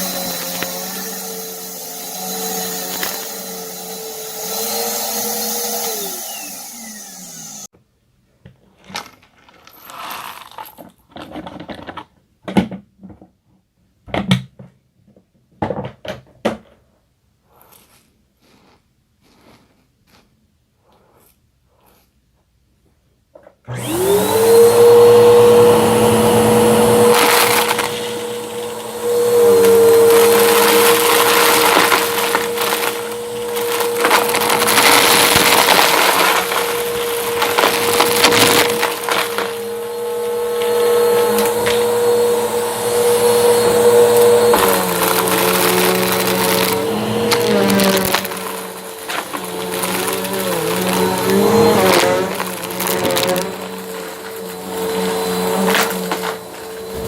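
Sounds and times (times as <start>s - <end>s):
vacuum cleaner motor whine: 0.0s - 7.7s, 23.7s - 57.0s
brushroll crunching debris: 26.5s - 41.9s, 43.6s - 57.0s.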